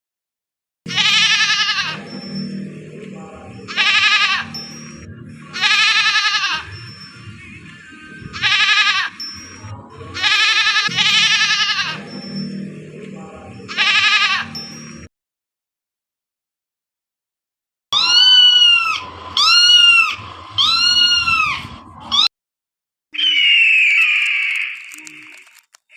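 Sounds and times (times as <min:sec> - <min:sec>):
goat bleating: 0:00.9 - 0:02.0, 0:03.7 - 0:04.6, 0:05.5 - 0:06.8, 0:08.3 - 0:09.2, 0:10.2 - 0:12.0, 0:13.7 - 0:14.7, 0:18.0 - 0:22.3
background music: 0:00.9 - 0:15.1.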